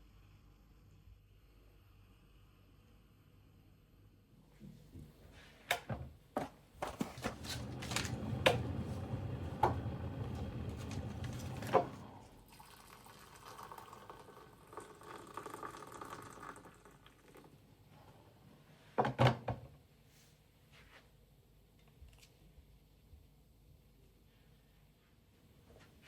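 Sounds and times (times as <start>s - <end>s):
handling noise: 6.4s - 12.1s
water running from a tap: 7.7s - 17.5s.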